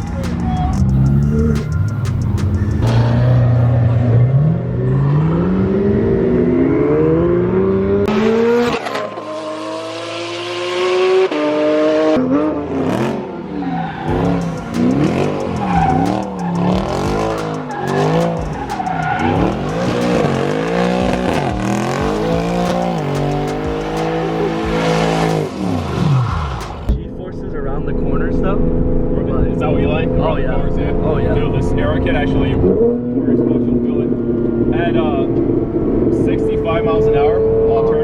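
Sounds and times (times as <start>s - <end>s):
tires squealing: 0.0s - 26.9s
sports car engine revving: 0.0s - 27.0s.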